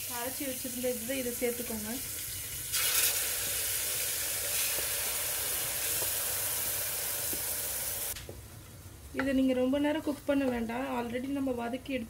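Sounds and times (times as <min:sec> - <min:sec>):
hot oil sizzling: 0:00.0 - 0:08.3.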